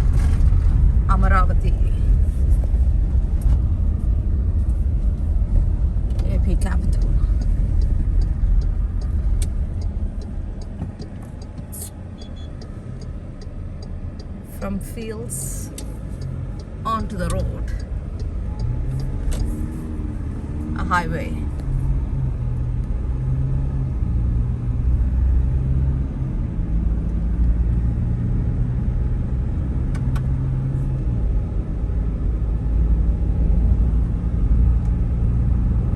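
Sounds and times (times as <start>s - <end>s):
car road and engine rumble: 0.0s - 35.9s
light steady ticking: 2.5s - 23.0s.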